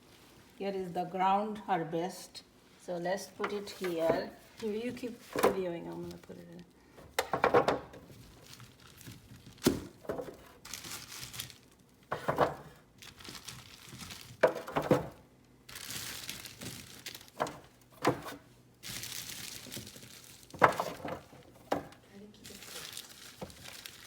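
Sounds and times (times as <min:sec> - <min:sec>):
bag crinkling and rustling: 0:03.6 - 0:06.6, 0:08.0 - 0:12.1, 0:12.8 - 0:14.6, 0:15.6 - 0:17.9, 0:18.8 - 0:21.7, 0:22.4 - 0:24.0.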